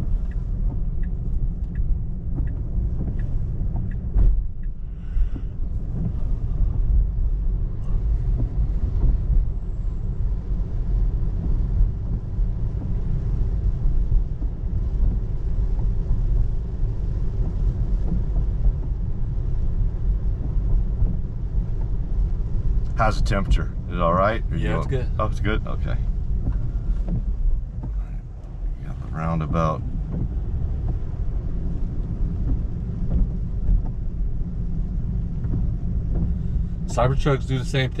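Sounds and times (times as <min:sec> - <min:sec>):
light ticks: 0:00.0 - 0:24.0, 0:24.7 - 0:38.0
road and tyre rumble: 0:00.0 - 0:38.0.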